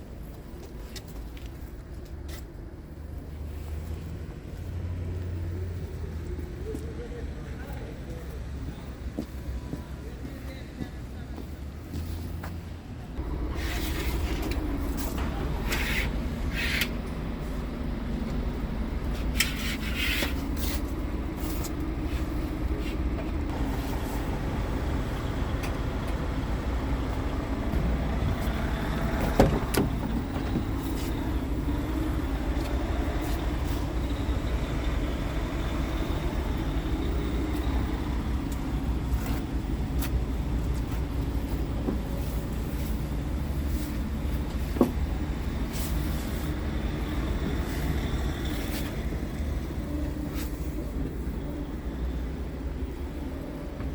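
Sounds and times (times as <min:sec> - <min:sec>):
truck diesel engine running: 0:13.1 - 0:53.9.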